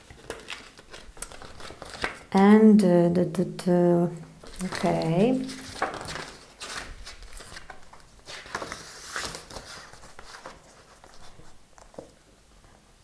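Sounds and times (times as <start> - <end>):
paper pages rustling: 0.0 - 2.3, 4.4 - 12.3.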